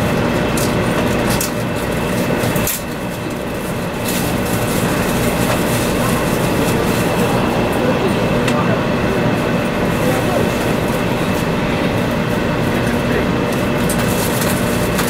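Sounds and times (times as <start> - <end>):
train wheels rolling on rails: 0.0 - 15.0
faint hum: 3.2 - 13.6.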